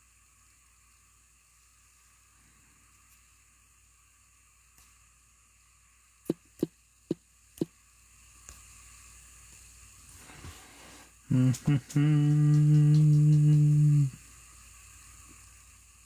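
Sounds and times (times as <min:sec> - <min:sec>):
loud steady pitched tone: 0:11.3 - 0:14.2.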